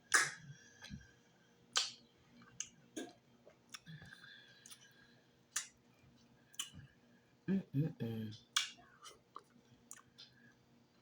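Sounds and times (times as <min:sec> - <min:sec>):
mouth chewing sounds: 0:08.6 - 0:10.3.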